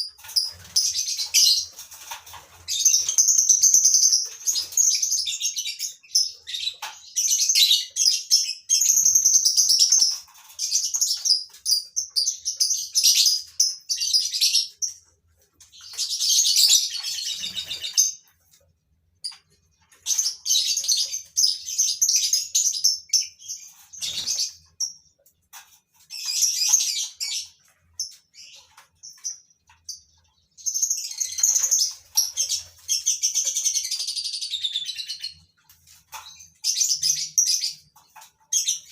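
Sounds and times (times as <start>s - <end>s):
lovebirds chirping and chattering: 0.0s - 38.9s.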